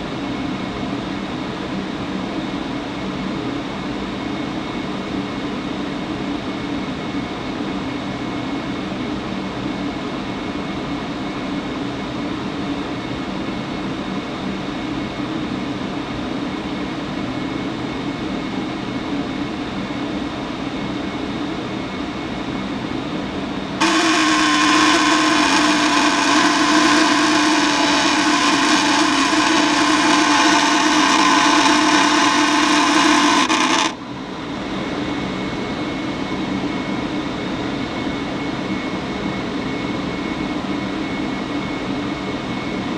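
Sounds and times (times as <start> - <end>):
blower fan humming: 23.8 - 34.0
loud electrical buzz: 23.8 - 34.0.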